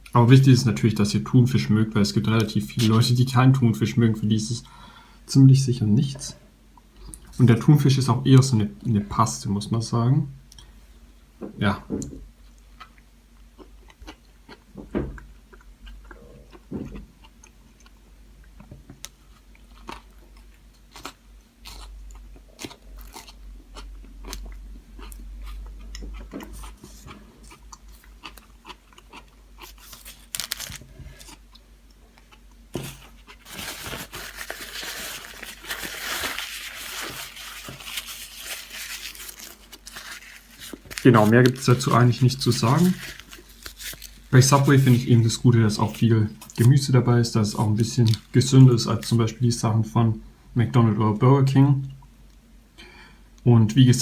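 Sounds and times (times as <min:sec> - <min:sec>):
biting and chewing sandwich: 0:19.1 - 0:45.1
rustling: 0:32.7 - 0:46.0.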